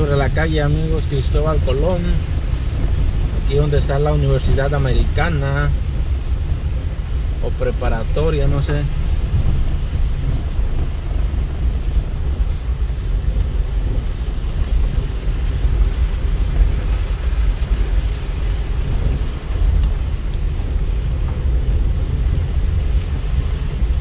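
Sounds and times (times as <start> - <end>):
deep rumble: 0.0 - 24.0
steady rain hiss: 0.0 - 24.0.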